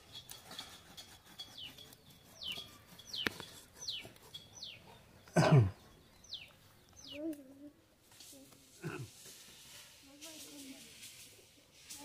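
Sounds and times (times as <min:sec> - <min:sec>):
bird peeping: 0:01.5 - 0:07.2.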